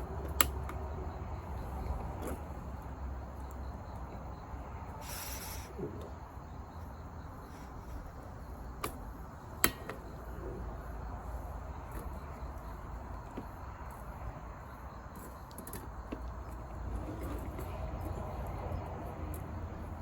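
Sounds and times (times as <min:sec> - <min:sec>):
campfire rumbling: 0:00.0 - 0:20.0
short hiss: 0:05.0 - 0:05.8.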